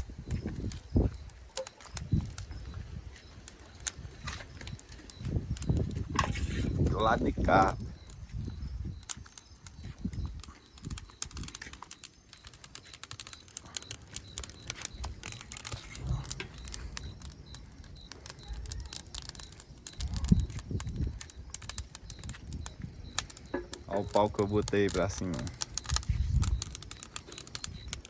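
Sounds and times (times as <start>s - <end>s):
dry wood crackling and snapping: 0.0s - 28.0s.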